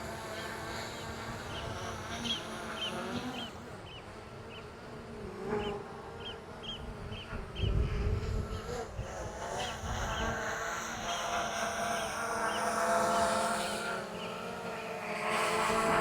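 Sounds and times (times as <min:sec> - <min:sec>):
drone propellers buzzing: 0:00.0 - 0:16.0
birds piping sharp calls: 0:00.2 - 0:04.7.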